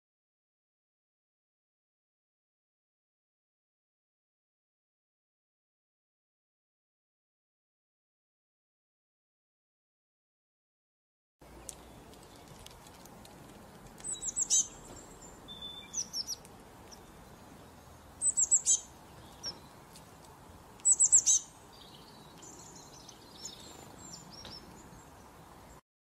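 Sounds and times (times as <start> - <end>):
bird chirping: 13.7 - 25.8.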